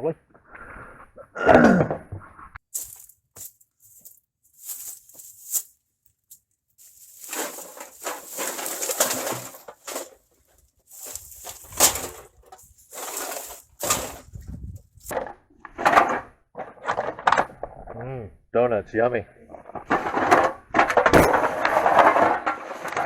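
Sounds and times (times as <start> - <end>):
trash rustling and clattering: 2.8 - 17.6, 19.7 - 23.0.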